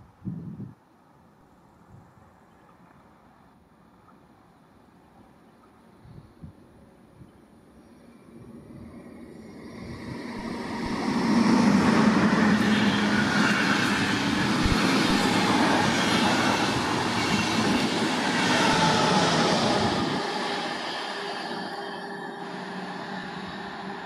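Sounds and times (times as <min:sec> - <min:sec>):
train passing: 0:07.8 - 0:24.0.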